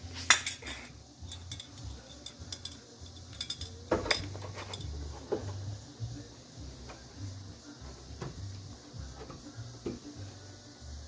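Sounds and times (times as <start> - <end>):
metal tools clinking on door: 1.3 - 5.0.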